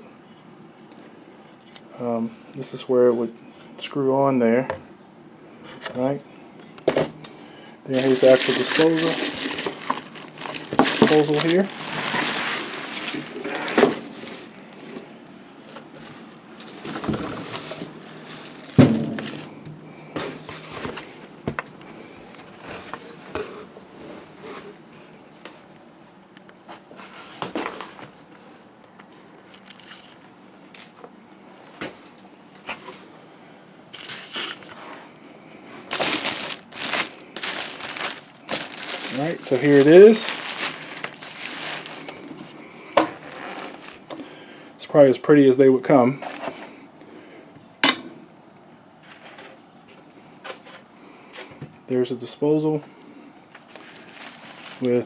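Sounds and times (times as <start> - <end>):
packaging rustling and crinkling: 7.9 - 19.6, 20.2 - 21.2, 29.4 - 30.2, 30.8 - 31.0, 34.0 - 34.8, 35.8 - 44.2, 46.2 - 46.7, 49.0 - 49.6, 53.5 - 55.0.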